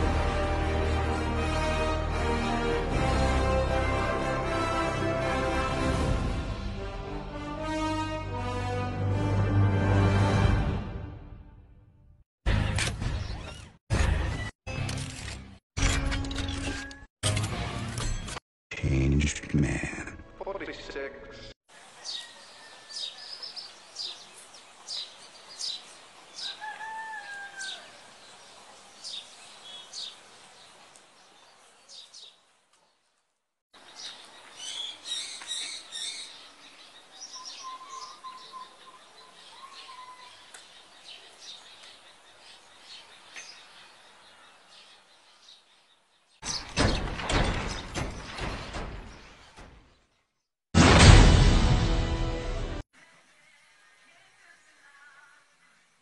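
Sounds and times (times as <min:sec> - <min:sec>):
birds chirping: 0:20.4 - 0:33.2, 0:33.8 - 0:50.5.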